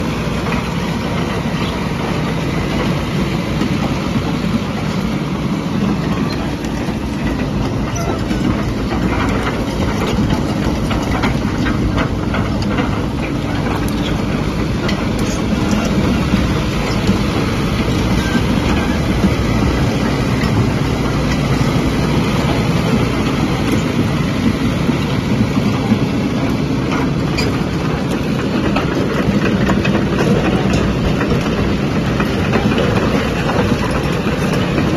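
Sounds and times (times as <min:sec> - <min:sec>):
excavator diesel engine running: 0:00.0 - 0:34.9
metallic clanks and rattles: 0:05.9 - 0:34.9.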